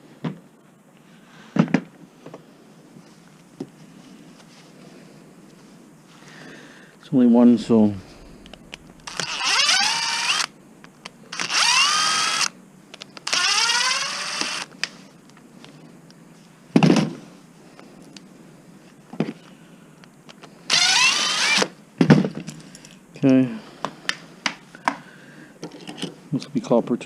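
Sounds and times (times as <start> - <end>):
power drill whining: 8.1 - 10.5, 11.3 - 12.6, 13.2 - 14.7, 20.7 - 21.7.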